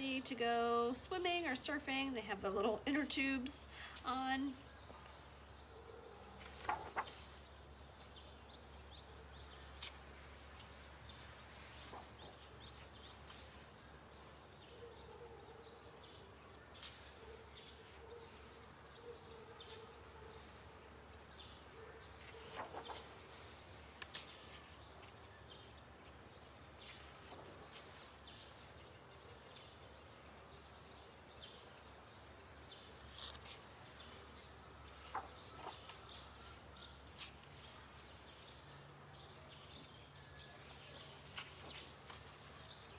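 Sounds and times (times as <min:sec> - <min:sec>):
faint steady background noise: 0:00.0 - 0:42.9
paper pages being turned: 0:06.4 - 0:07.5, 0:09.4 - 0:13.8, 0:16.5 - 0:18.0, 0:22.2 - 0:25.2, 0:26.8 - 0:28.8, 0:32.9 - 0:38.4, 0:40.6 - 0:42.9.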